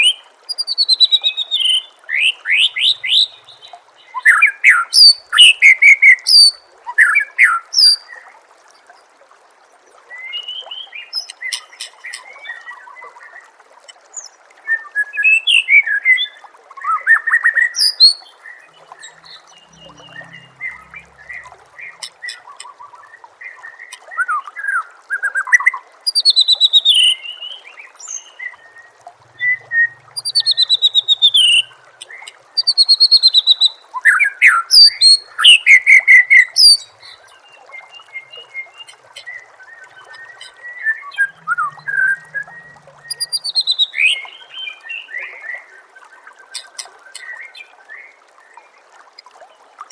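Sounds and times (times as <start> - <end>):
bird singing whistles and trills: 0.0 - 8.1, 14.2 - 24.4, 25.2 - 45.6
water trickling: 0.0 - 49.9.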